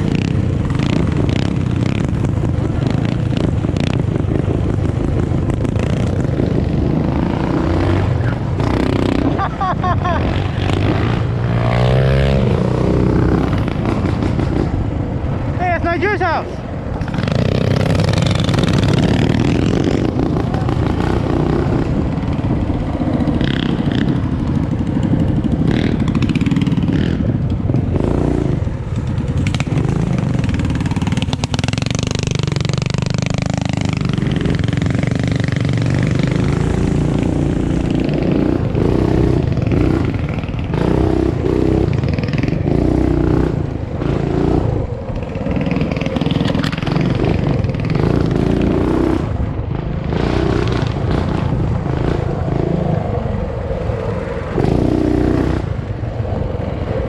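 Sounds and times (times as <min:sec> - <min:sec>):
motorbike engines running hard: 0:00.0 - 0:57.0.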